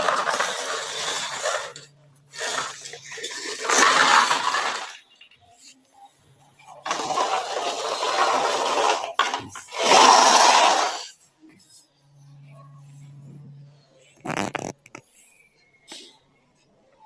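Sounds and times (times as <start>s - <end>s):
hard objects clattering: 0.0s - 5.3s, 6.8s - 11.1s.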